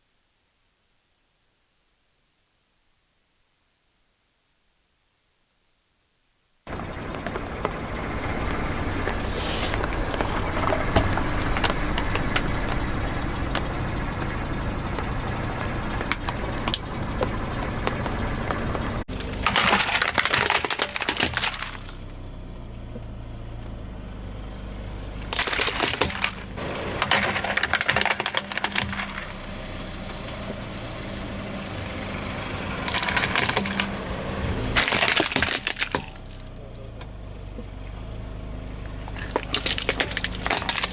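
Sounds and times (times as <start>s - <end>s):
tyre crushing crunchy objects: 19.1s - 22.1s, 25.2s - 29.7s, 32.6s - 36.6s, 39.0s - 40.9s.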